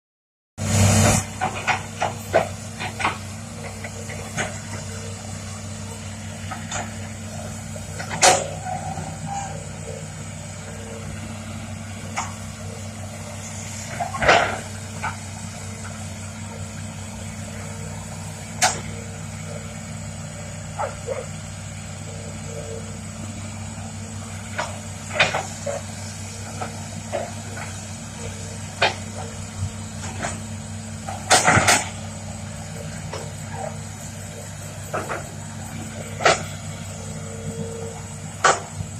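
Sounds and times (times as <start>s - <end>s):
excavator diesel engine running: 0.6s - 38.9s.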